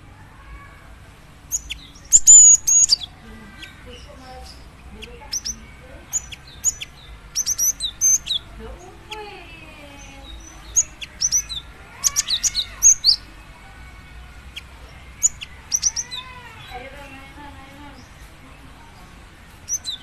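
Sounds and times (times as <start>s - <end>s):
bird high chirps: 1.4s - 18.4s, 19.5s - 20.0s.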